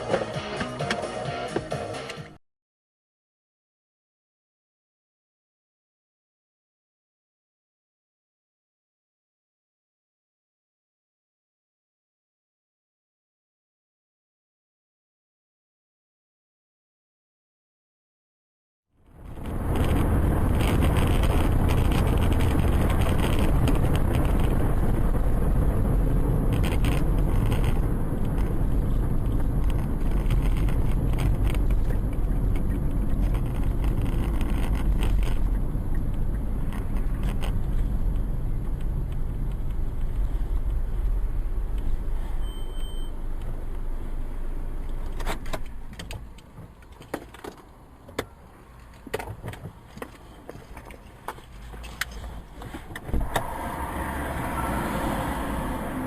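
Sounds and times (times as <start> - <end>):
car engine and road rumble: 19.0 - 56.0
clicks and rattles: 19.4 - 24.8, 26.5 - 28.6, 29.2 - 40.2.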